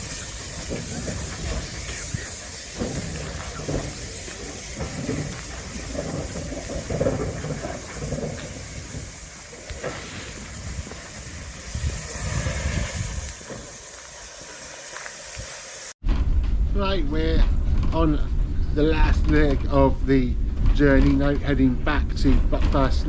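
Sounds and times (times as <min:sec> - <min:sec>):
steam locomotive hissing steam: 0:00.0 - 0:16.0
train rumbling: 0:00.0 - 0:23.0.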